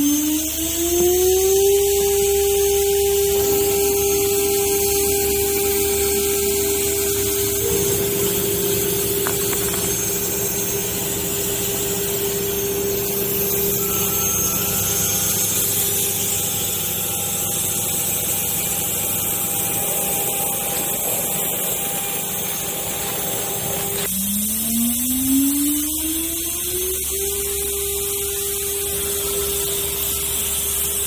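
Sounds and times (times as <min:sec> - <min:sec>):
rising whine: 0:00.0 - 0:17.4
cnc router spindle whine: 0:00.0 - 0:31.0
machining noise: 0:05.6 - 0:17.3.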